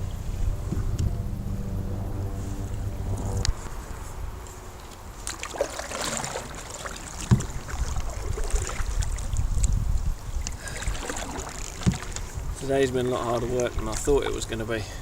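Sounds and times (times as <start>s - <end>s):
wind rumbling on microphone: 0.0s - 5.3s, 6.1s - 15.0s
paddle strokes and splashes: 3.6s - 14.7s.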